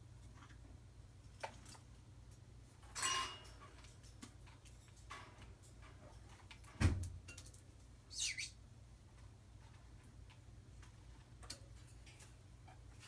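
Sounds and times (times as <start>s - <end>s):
bird chirp: 8.1s - 8.6s.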